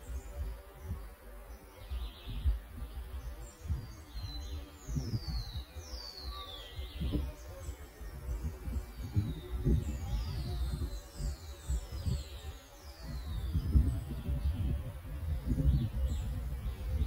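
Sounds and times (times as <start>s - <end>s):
faint bird chirp: 0.0s - 17.0s.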